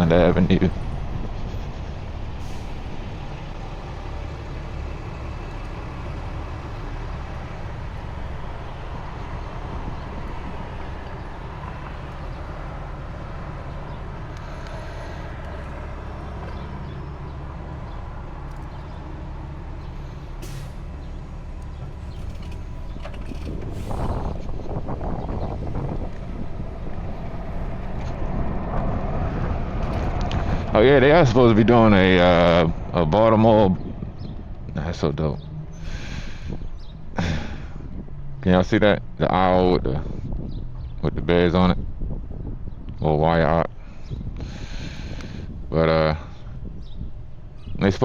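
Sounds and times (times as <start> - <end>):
heavy low rumble: 0.0 - 48.0
wind and road rush: 0.0 - 48.0.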